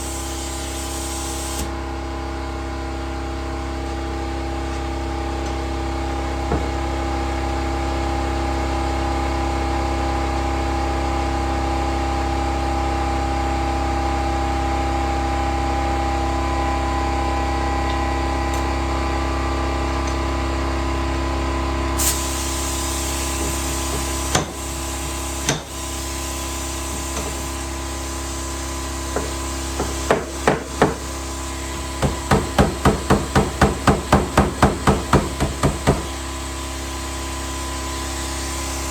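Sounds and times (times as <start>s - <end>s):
hiss: 0.0s - 1.7s, 22.0s - 32.2s.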